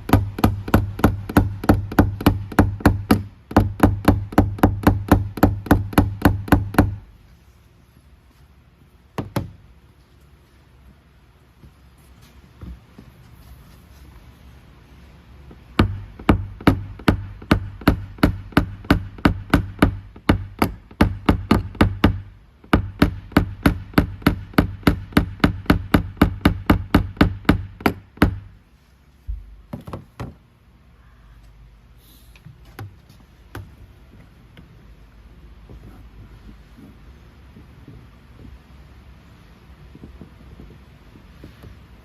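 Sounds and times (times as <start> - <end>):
hammer tapping punch on door panel: 0.0 - 7.0, 15.8 - 28.4.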